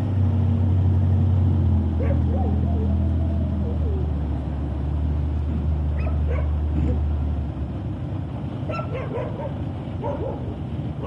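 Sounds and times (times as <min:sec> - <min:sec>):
dog barking: 0:02.0 - 0:02.9, 0:06.0 - 0:06.6, 0:08.7 - 0:10.5.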